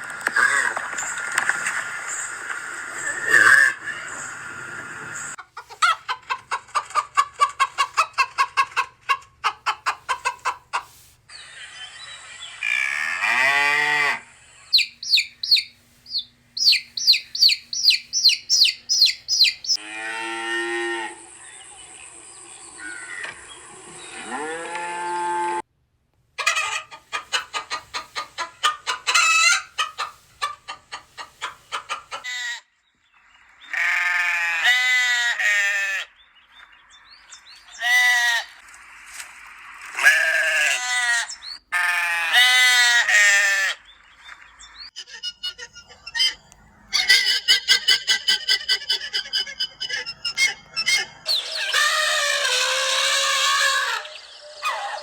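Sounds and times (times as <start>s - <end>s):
chickens clucking: 2.8s - 12.8s, 14.6s - 19.8s, 26.4s - 32.5s, 44.4s - 55.0s
cow mooing: 13.2s - 14.3s, 19.8s - 21.2s.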